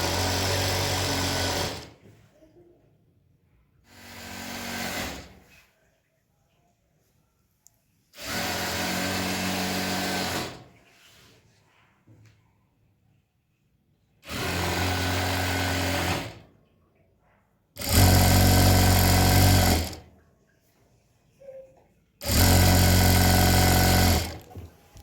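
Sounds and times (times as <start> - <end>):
electric sewing machine running: 0.0 - 2.0, 3.9 - 5.4, 8.2 - 10.7, 14.2 - 16.4, 17.8 - 20.0, 22.2 - 24.5.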